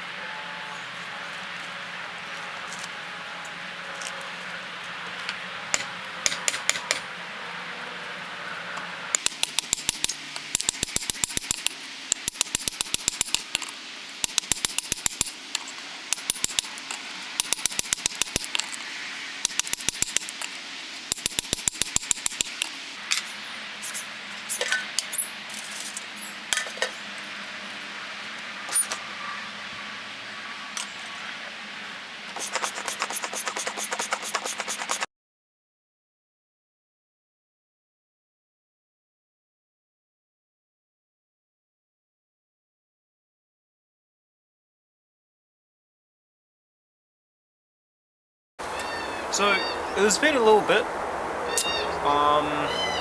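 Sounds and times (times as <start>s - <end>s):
steady hiss: 9.2s - 24.7s.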